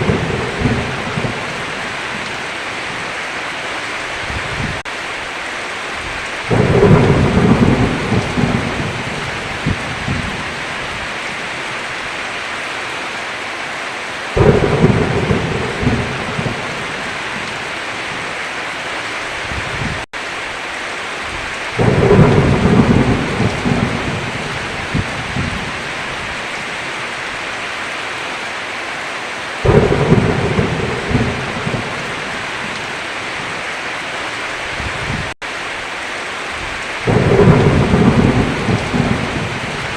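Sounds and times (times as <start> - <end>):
thunder claps rumbling: 0.0 - 3.0, 6.0 - 11.5, 14.4 - 18.3, 21.3 - 26.8, 29.6 - 33.6, 36.6 - 39.9
heavy rain: 0.0 - 39.9.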